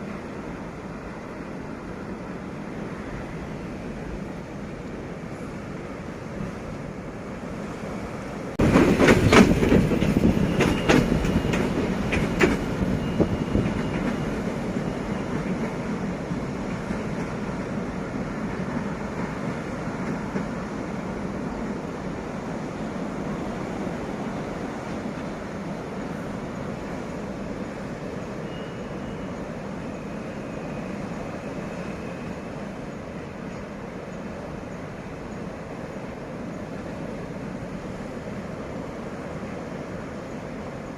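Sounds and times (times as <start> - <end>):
wheels clicking over rail joints: 8.6 - 17.6.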